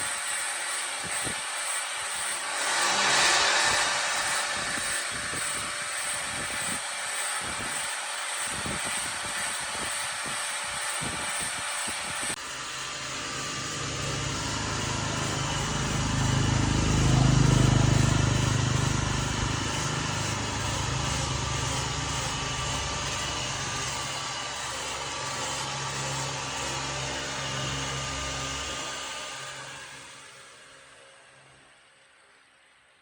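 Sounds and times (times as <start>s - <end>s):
motor running with hiss: 0.0s - 31.5s.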